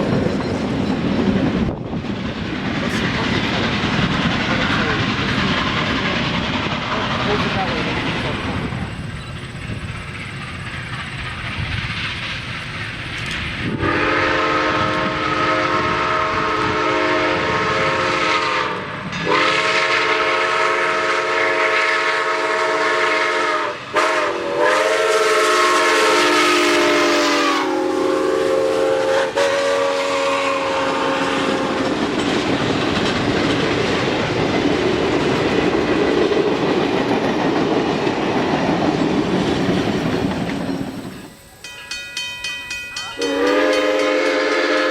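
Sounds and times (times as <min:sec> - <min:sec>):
train rolling by: 0:00.0 - 0:44.9
steam locomotive chime whistle: 0:13.3 - 0:31.9, 0:40.5 - 0:44.9.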